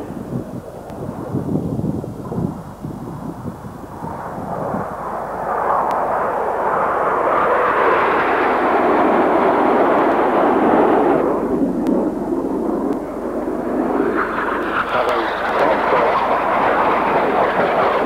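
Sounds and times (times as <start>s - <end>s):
jets flying past: 3.9s - 18.0s.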